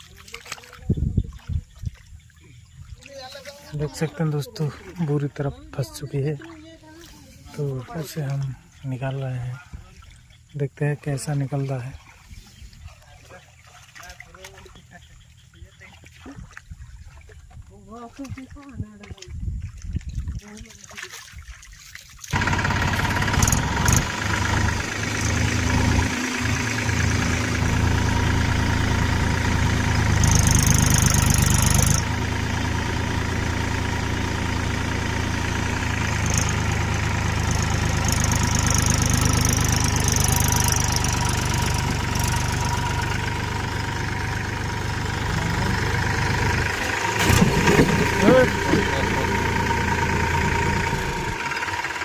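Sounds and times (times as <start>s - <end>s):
tractor diesel engine under load: 22.3s - 52.0s.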